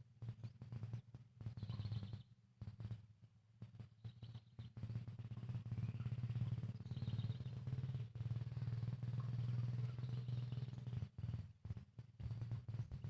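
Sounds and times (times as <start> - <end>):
faint bird chirps: 1.5 - 2.3, 4.0 - 8.0, 9.2 - 11.4
low pulsing hum: 3.6 - 13.0.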